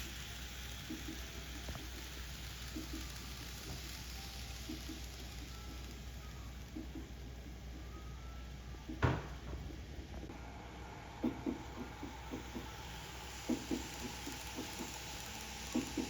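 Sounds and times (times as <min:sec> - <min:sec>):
model train clicks on track: 0:00.0 - 0:07.1, 0:11.4 - 0:16.0
steady hiss: 0:00.0 - 0:16.0
model train knock: 0:13.4 - 0:15.0.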